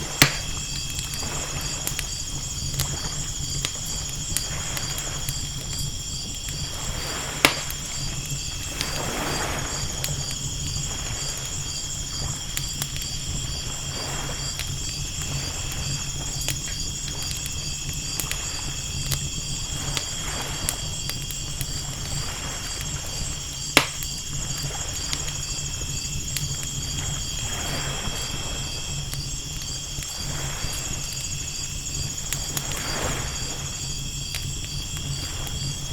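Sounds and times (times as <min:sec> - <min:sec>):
campfire crackling and popping: 0:00.0 - 0:35.9
crickets chirping: 0:00.0 - 0:35.9
ocean waves washing: 0:06.6 - 0:12.5, 0:26.8 - 0:29.0.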